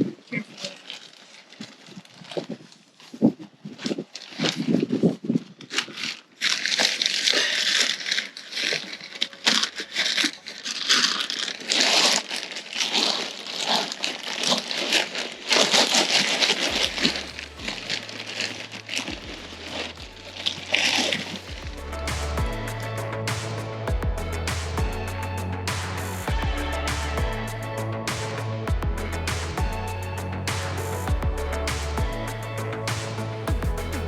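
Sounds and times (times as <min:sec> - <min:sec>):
plastic bag crinkling: 0:00.0 - 0:23.7
soil scraping and crunching: 0:00.0 - 0:34.0.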